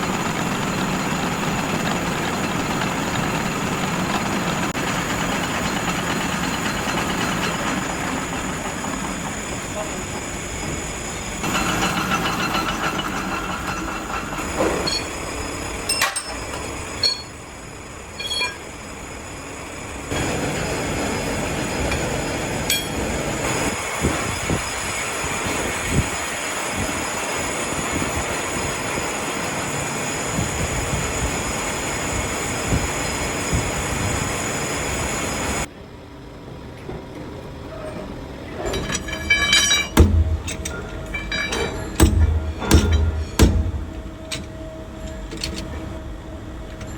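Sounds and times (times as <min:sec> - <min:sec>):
shop machinery running: 0:00.0 - 0:35.7, 0:37.1 - 0:46.9
sharp metal clinks: 0:15.9 - 0:17.4, 0:18.2 - 0:18.7, 0:38.6 - 0:45.6.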